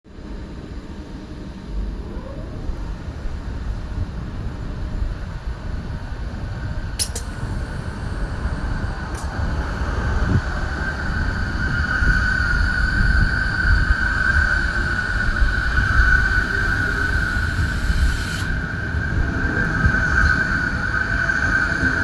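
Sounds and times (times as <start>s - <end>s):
high whine: 0.1s - 22.0s
train rumble pulling away: 2.8s - 22.0s.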